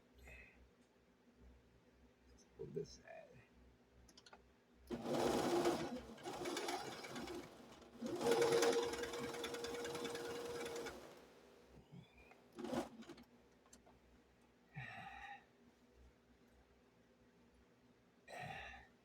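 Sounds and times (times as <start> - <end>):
sewing machine stitching: 4.9 - 11.5, 12.5 - 13.2.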